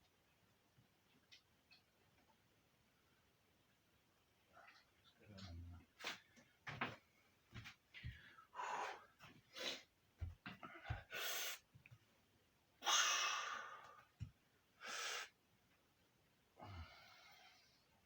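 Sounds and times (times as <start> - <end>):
man breathing heavily: 8.0 - 9.9, 10.6 - 11.6, 12.8 - 14.1, 16.6 - 18.0.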